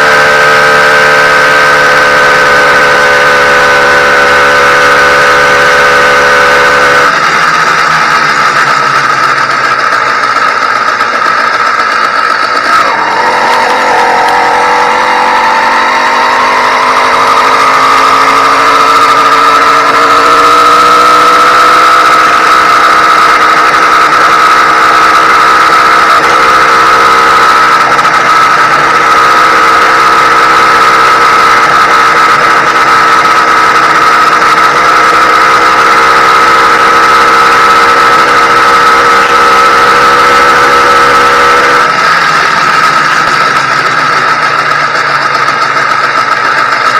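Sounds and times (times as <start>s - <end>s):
two-stroke motorized bike engine: 0.0s - 46.9s.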